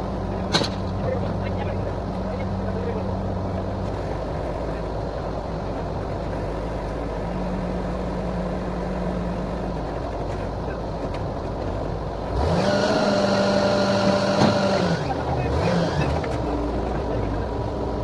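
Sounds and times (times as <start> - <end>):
drilling rig engine running: 11.9 - 18.0.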